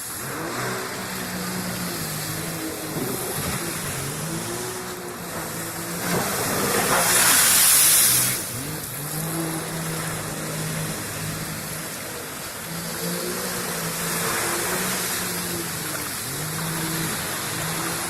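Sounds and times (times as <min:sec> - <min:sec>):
loud rushing hiss: 0:00.0 - 0:12.6
jet ski engine running: 0:00.0 - 0:18.0.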